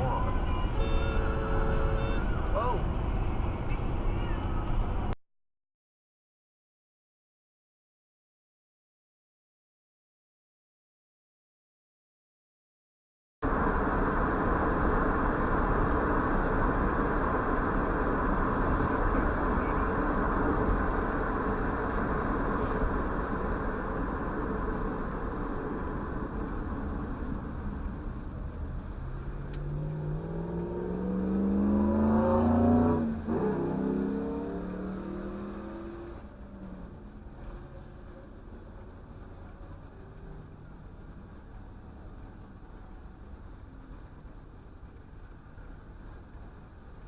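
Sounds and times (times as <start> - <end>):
car road and engine noise: 0.0 - 5.2, 13.4 - 47.0
vehicle passing by: 13.8 - 40.8.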